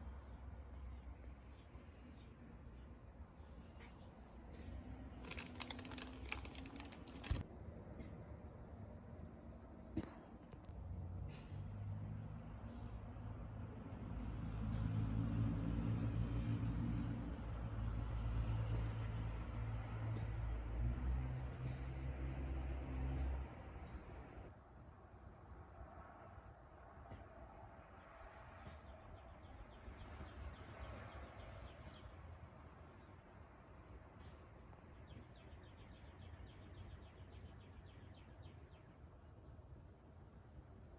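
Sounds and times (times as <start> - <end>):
low steady background rumble: 0.0 - 11.6.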